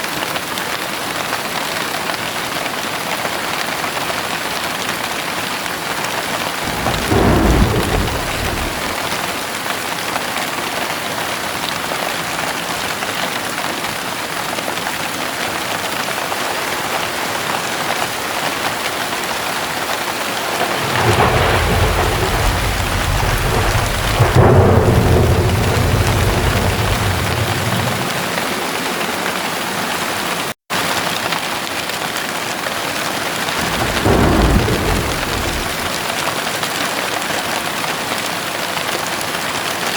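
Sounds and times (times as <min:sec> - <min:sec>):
heavy rain: 0:00.0 - 0:39.9
thunder rumbling: 0:06.4 - 0:09.6, 0:19.8 - 0:29.9, 0:33.4 - 0:36.5.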